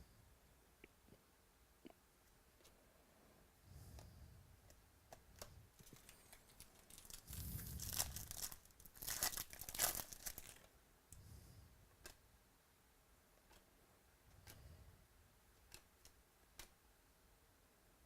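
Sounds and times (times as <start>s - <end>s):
wrapper tearing and crinkling: 5.8s - 10.7s.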